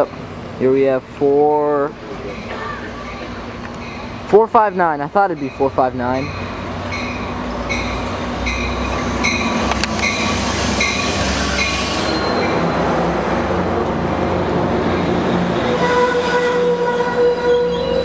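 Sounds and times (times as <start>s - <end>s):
train rumble: 0.0s - 18.0s
locomotive bell ringing: 2.3s - 12.6s.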